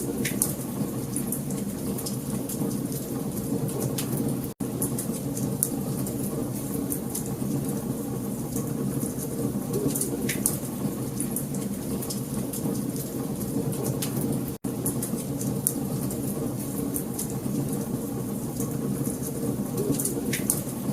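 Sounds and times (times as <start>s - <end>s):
wood fire crackling: 0.0s - 20.9s.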